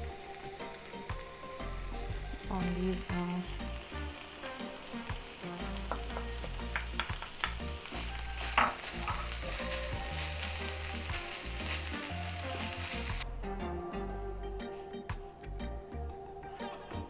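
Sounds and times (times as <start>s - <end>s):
food sizzling in a pot: 0.0s - 13.4s.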